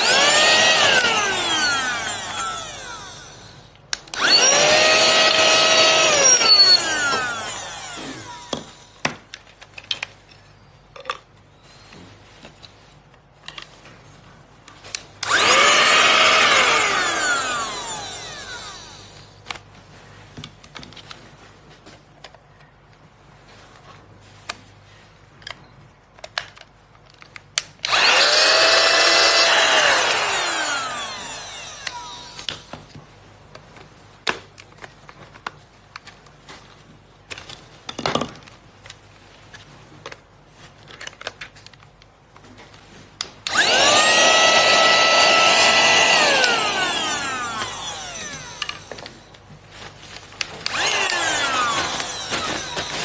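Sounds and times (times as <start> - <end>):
handheld vacuum motor whine: 0.0 - 9.0, 15.2 - 19.4, 27.8 - 32.7, 43.4 - 49.4, 50.4 - 53.0.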